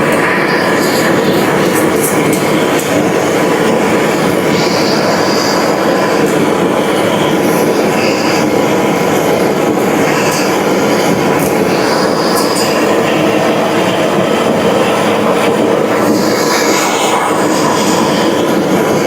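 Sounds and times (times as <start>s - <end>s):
loud mechanical rumble: 0.0s - 19.0s
high squeals: 3.2s - 8.8s, 9.8s - 13.9s.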